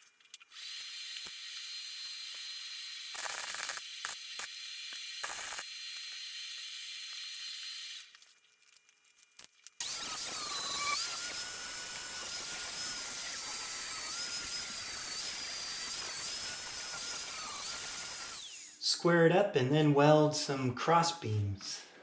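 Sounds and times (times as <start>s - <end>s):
power tool whining: 0.5s - 8.2s, 9.8s - 18.8s.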